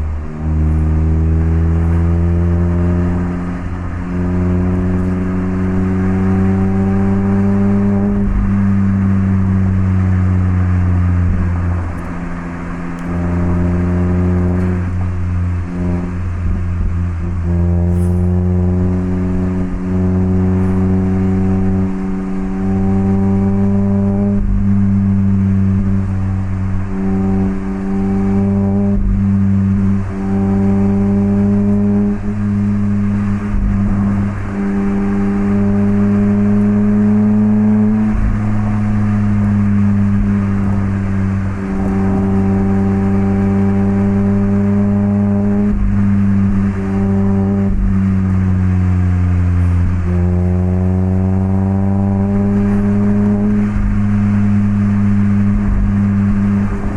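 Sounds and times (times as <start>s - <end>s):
car engine exhaust while driving: 0.0s - 56.9s.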